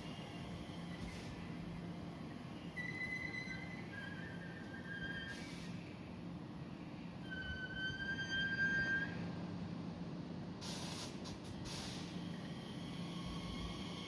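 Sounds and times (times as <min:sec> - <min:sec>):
short bursts of hiss: 0:10.6 - 0:12.2.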